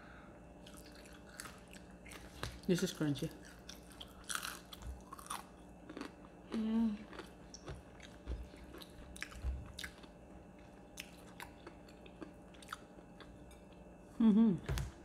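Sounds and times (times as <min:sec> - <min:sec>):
crunchy chewing: 0:00.6 - 0:02.7, 0:03.3 - 0:14.0
person humming mm: 0:06.5 - 0:07.1, 0:14.2 - 0:14.8.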